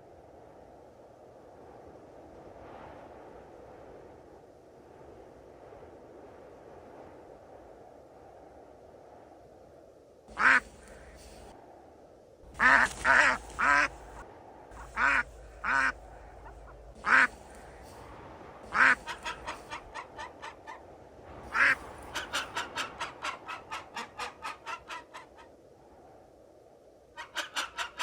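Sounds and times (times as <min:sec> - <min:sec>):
bird calling: 0:10.3 - 0:11.5, 0:12.4 - 0:18.1, 0:18.7 - 0:20.8, 0:21.5 - 0:25.4.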